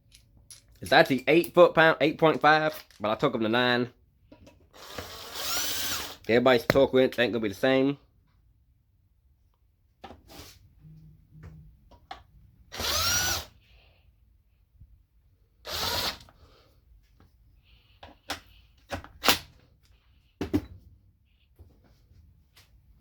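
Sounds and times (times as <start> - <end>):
power drill running: 4.7 - 6.3, 12.7 - 13.6, 15.6 - 16.3.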